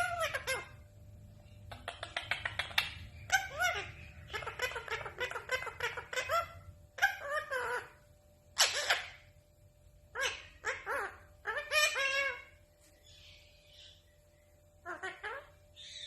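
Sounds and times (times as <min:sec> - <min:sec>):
parrot laugh-like calls: 0:00.0 - 0:00.8, 0:01.7 - 0:08.0, 0:08.6 - 0:09.3, 0:10.1 - 0:12.5, 0:14.8 - 0:15.6
parrot clicking chatter: 0:01.7 - 0:06.5.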